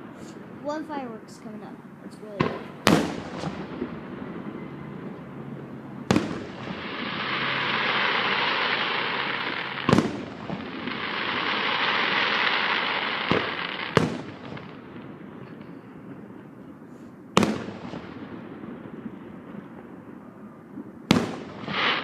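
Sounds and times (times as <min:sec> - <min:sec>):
fireworks bangs: 0:00.0 - 0:22.0
firework hiss: 0:06.1 - 0:14.7, 0:21.1 - 0:22.0.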